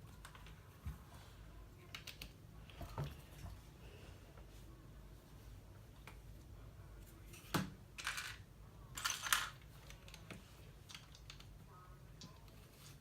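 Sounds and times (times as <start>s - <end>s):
plastic pieces rattling: 8.0s - 8.4s, 9.0s - 10.2s.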